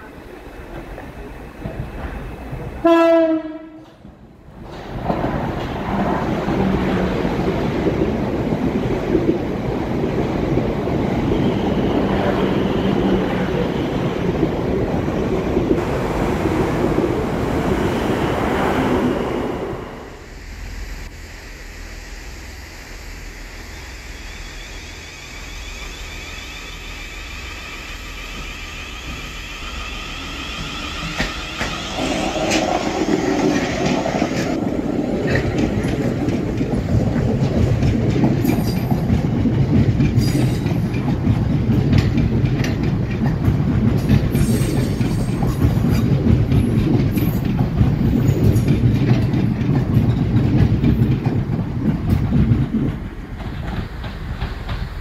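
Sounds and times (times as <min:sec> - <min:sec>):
train rumbling past: 0:00.0 - 0:55.0
wheels clicking over rail joints: 0:30.6 - 0:55.0.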